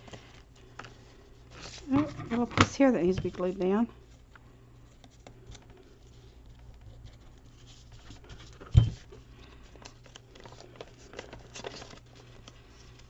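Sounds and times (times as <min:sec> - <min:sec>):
paper rustling and clicking: 0:04.2 - 0:13.0.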